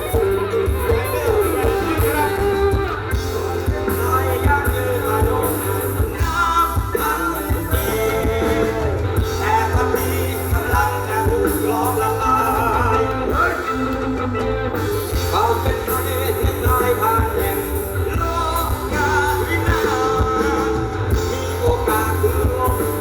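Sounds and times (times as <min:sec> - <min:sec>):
person singing: 0:00.0 - 0:23.0
rock band music: 0:00.0 - 0:23.0.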